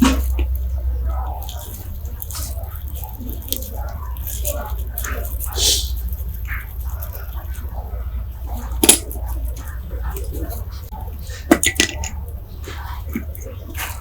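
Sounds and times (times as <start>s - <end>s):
steady low hum: 0.0s - 14.0s
metal parts clinking: 8.7s - 10.6s, 11.5s - 12.2s.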